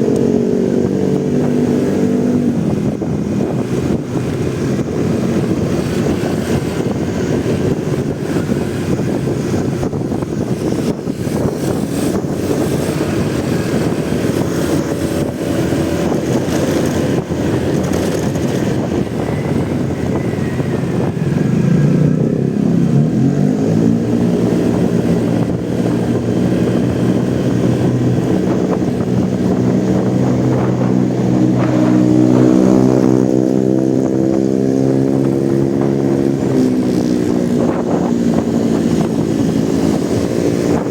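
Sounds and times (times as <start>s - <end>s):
motorcycle engine: 0.0s - 40.9s
wind noise: 0.0s - 40.9s.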